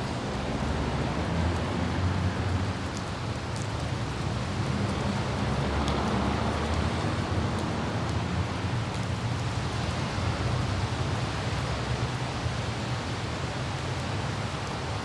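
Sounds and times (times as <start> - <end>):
car driving on wet road: 0.0 - 15.0
light rain: 0.0 - 15.0
raindrop ticks: 0.0 - 15.0
wind: 0.0 - 15.0.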